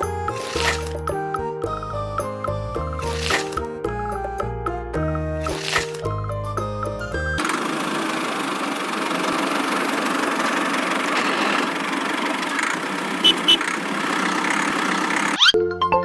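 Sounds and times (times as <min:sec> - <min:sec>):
small engine running: 0:07.4 - 0:15.4.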